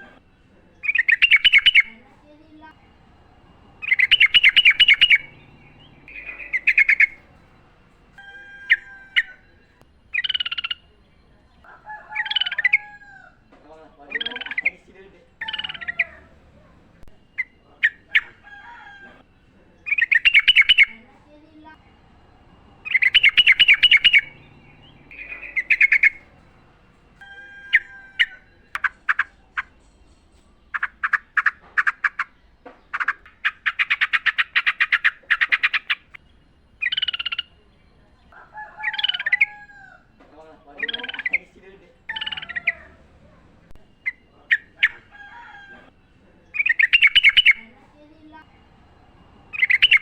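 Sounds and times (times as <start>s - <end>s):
bird chattering song: 0.0s - 50.0s.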